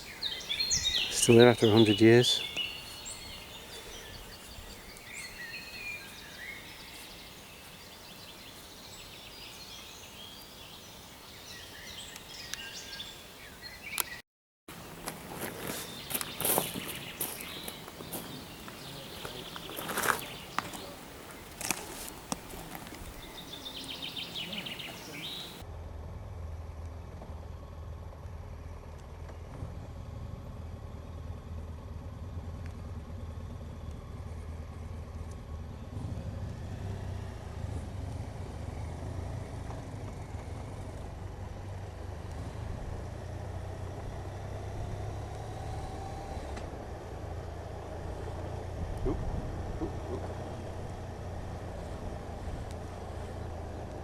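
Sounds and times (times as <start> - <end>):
high bird trill: 0.0 - 14.2, 14.8 - 25.6
motorcycle running: 14.7 - 54.0.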